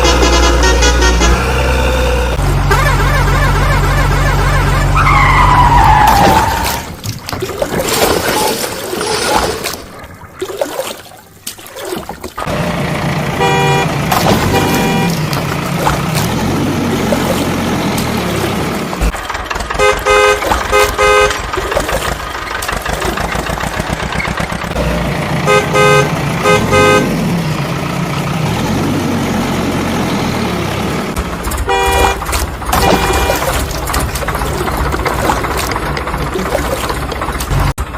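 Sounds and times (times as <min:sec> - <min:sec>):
horn toots: 0:00.0 - 0:06.9, 0:13.3 - 0:15.5, 0:19.6 - 0:22.0, 0:24.8 - 0:27.3, 0:31.5 - 0:34.0
diesel engine rumbling: 0:00.0 - 0:11.5, 0:12.2 - 0:37.9.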